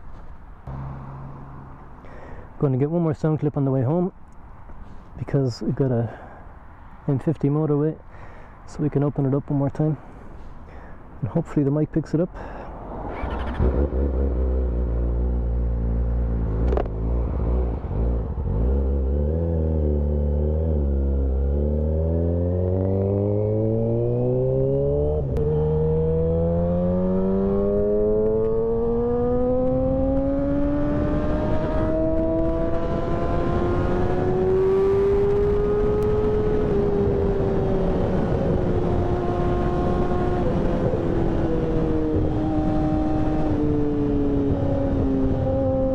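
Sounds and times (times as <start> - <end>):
motorcycle engine revving: 13.1 - 45.9.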